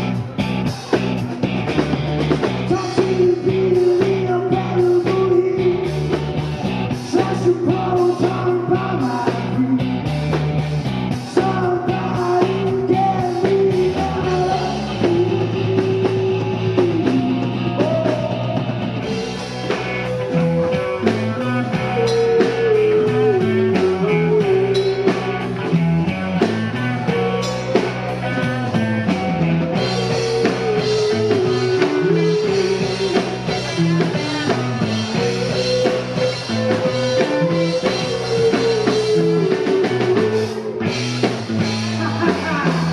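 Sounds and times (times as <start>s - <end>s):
rock band playing: 0.0s - 42.9s
person singing: 2.5s - 6.2s, 6.9s - 10.2s, 11.1s - 25.8s, 26.6s - 42.9s.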